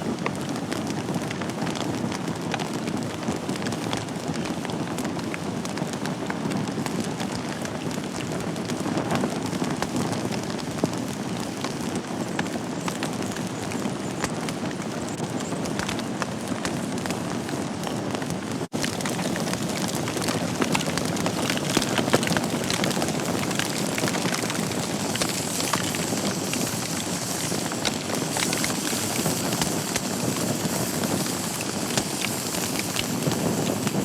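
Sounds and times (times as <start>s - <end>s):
fire crackles and pops: 0.0s - 34.0s
wood fire burning: 0.0s - 34.0s.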